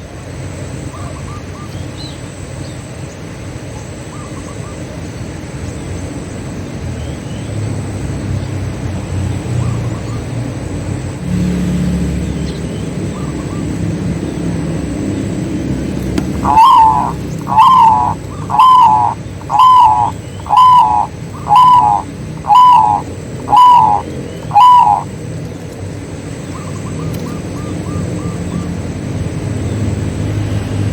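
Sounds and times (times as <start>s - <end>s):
dove cooing: 15.7s - 25.2s
faint smaller bird calls: 16.0s - 25.6s.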